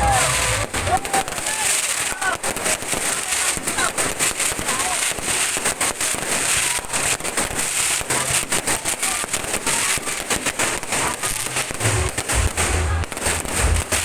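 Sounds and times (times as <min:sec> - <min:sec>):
low rumble: 0:00.0 - 0:01.2
fireworks popping and banging: 0:00.0 - 0:14.0.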